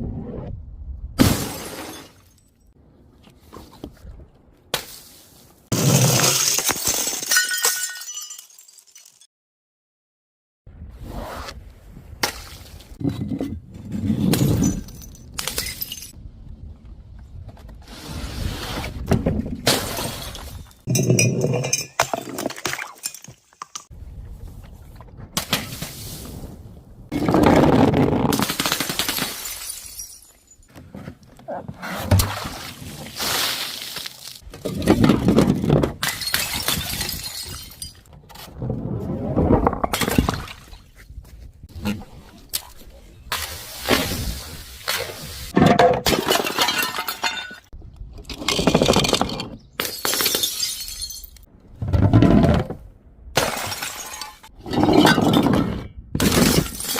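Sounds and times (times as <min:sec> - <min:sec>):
glass bottles shattering: 0:01.2 - 0:02.6, 0:05.8 - 0:09.3, 0:14.3 - 0:16.2, 0:19.7 - 0:23.9, 0:29.0 - 0:30.7, 0:36.0 - 0:38.1, 0:45.6 - 0:47.7, 0:48.5 - 0:51.5, 0:53.4 - 0:55.4, 0:56.2 - 0:56.9
glass shards tinkling: 0:07.3 - 0:09.3.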